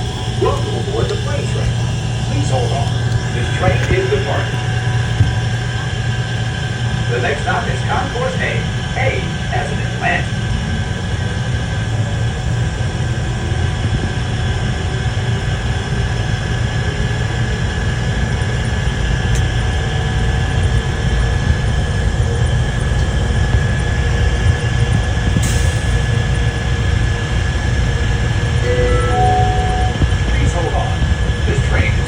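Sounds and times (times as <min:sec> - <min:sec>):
train high whine: 0:00.0 - 0:18.6, 0:28.4 - 0:32.0
train low rumble: 0:00.0 - 0:32.0.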